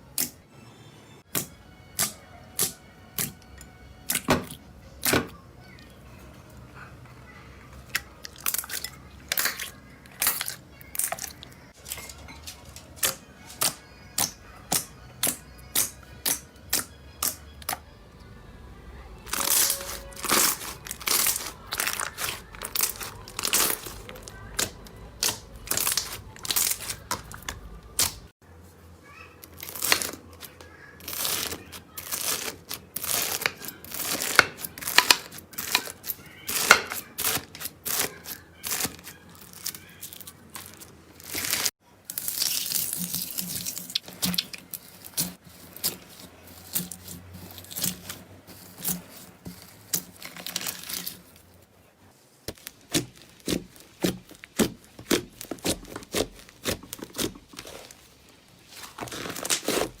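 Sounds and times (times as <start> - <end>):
slime squishing with sticky pops: 19.3 - 28.3, 31.1 - 51.2, 52.5 - 58.0, 58.7 - 60.0.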